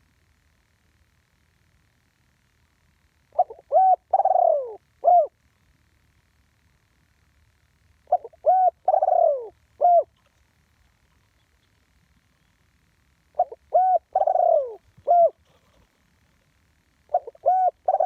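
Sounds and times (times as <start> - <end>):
dove cooing: 3.3 - 5.4, 8.0 - 10.3, 13.3 - 16.5, 17.1 - 18.0.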